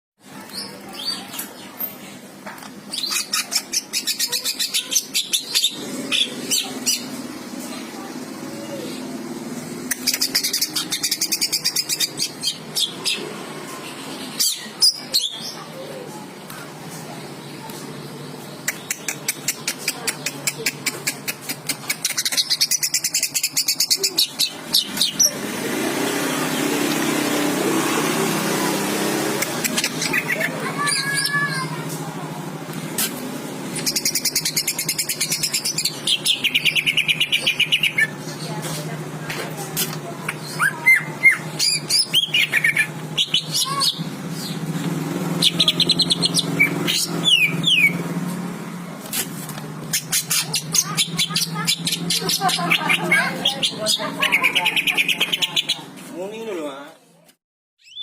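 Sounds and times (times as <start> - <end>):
bird chattering song: 0.3 - 9.2, 9.8 - 25.7, 29.4 - 31.8, 33.0 - 48.2, 49.8 - 56.0, 57.8 - 58.0
bird singing high chirps: 33.7 - 38.4, 40.3 - 44.7, 45.3 - 48.1, 57.8 - 58.0.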